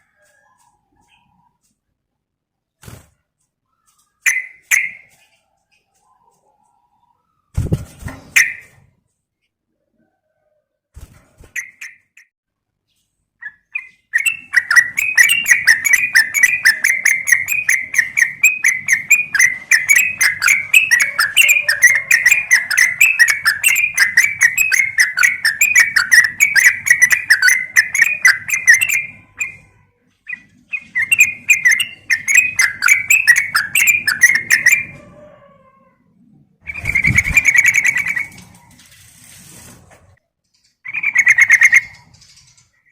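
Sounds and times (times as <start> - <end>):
bulbul chattering call: 13.8 - 29.6, 30.3 - 34.9.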